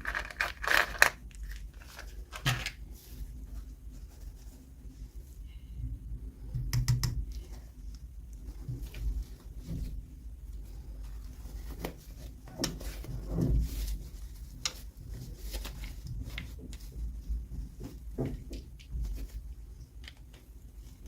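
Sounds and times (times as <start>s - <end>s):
hands handling plastic packaging: 0.0s - 3.4s
low steady rumble: 0.0s - 21.0s.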